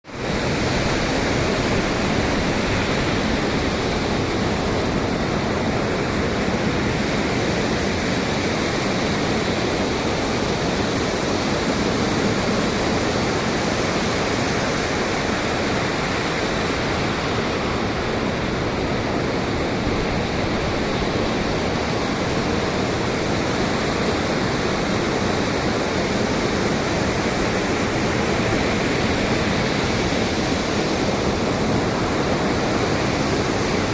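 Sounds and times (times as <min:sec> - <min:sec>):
ocean surf: 0:00.0 - 0:33.9
wind: 0:00.0 - 0:33.9.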